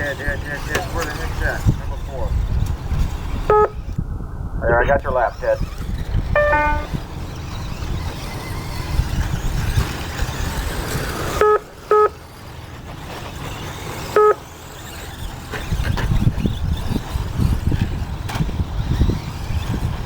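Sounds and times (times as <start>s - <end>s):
electric rc cars whirring: 0.0s - 20.0s
short electronic beeps: 6.4s - 7.0s.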